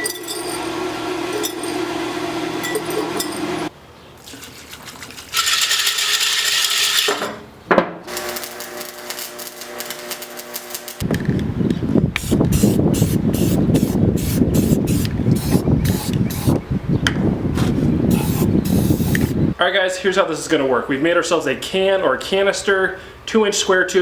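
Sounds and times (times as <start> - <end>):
rough rattling machine noise: 0.0 - 3.7
harsh hissing: 18.1 - 19.4.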